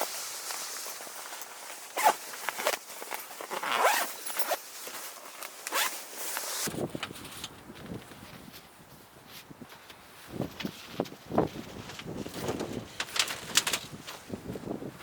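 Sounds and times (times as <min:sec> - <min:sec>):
zipper being pulled: 0:01.9 - 0:02.8, 0:03.4 - 0:04.6, 0:05.6 - 0:06.7.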